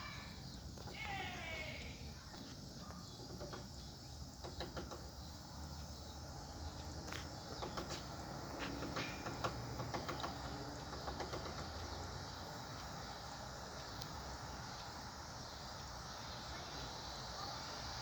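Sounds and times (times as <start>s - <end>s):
woodpecker pecking on wood: 3.1s - 5.2s, 8.7s - 12.0s.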